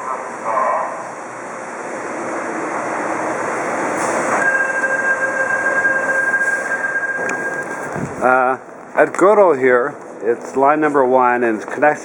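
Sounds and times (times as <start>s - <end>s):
high-pitched whine: 2.1s - 8.6s.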